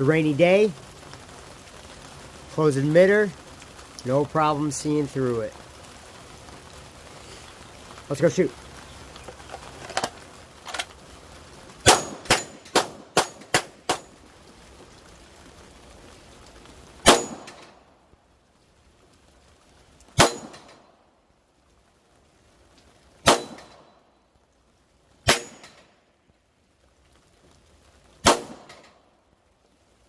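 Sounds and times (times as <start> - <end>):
metallic clang of steel targets: 11.8 - 14.1, 17.0 - 17.7, 20.2 - 20.8, 23.3 - 23.8, 25.3 - 25.9
pistol shots: 11.9 - 14.0, 17.0 - 17.7, 20.2 - 20.8, 23.2 - 23.9, 28.2 - 28.9.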